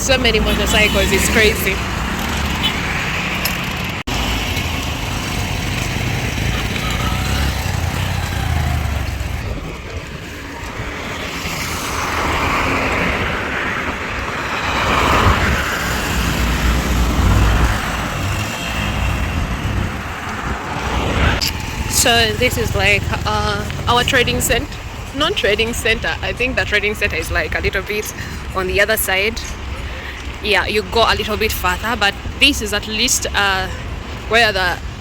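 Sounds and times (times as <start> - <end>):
vehicle going by: 0.0 - 28.5
road traffic passing: 0.0 - 35.0.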